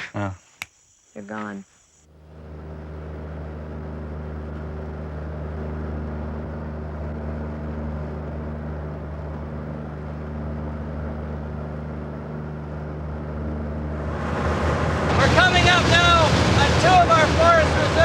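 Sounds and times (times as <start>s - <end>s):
engine droning steadily: 2.1s - 18.0s.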